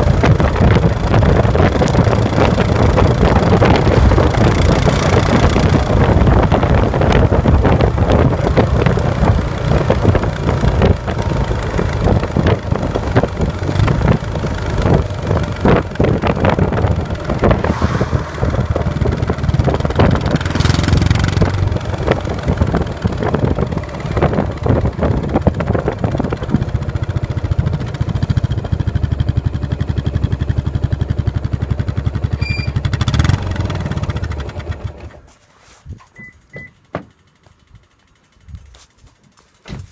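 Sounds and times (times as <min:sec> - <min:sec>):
wind rush: 0:00.0 - 0:27.0
motorcycle engine exhaust beat: 0:00.0 - 0:32.4.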